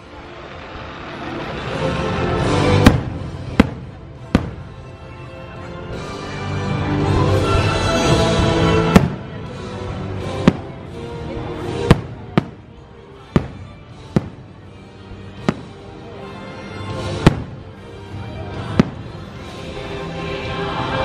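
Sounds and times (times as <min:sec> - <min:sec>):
music: 0:00.0 - 0:21.0
fireworks bursting: 0:00.4 - 0:05.0, 0:08.2 - 0:16.0, 0:16.9 - 0:17.8, 0:18.4 - 0:19.6.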